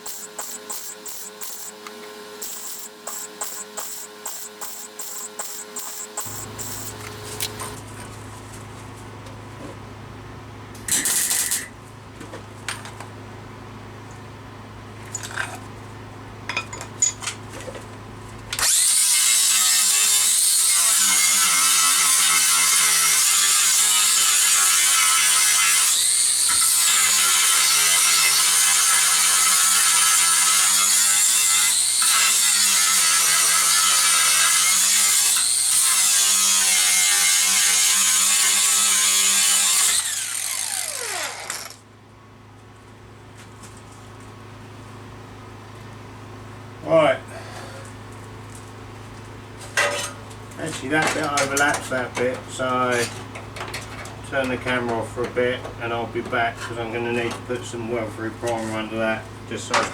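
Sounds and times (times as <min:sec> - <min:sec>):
welding crackle: 0:02.4 - 0:07.8, 0:10.9 - 0:11.7.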